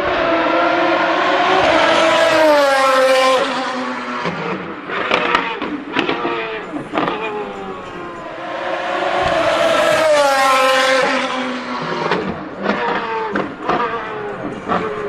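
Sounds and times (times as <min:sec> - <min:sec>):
race car engine revving: 0:00.0 - 0:15.0
exhaust cracks: 0:04.2 - 0:15.0.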